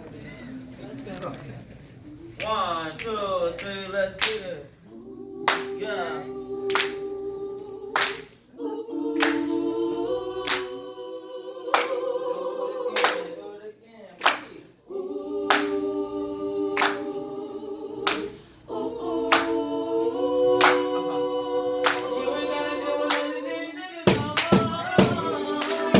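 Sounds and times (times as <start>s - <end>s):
a cappella harmony singing: 2.1s - 25.9s
sharp clap: 2.4s - 4.5s, 5.5s - 5.8s, 6.7s - 7.0s, 8.0s - 8.3s, 9.2s - 9.5s, 11.8s - 12.0s, 14.2s - 14.6s, 15.5s - 15.8s, 16.8s - 17.1s, 18.1s - 18.3s, 19.3s - 19.6s, 20.6s - 20.9s, 21.8s - 22.1s, 24.1s - 25.9s.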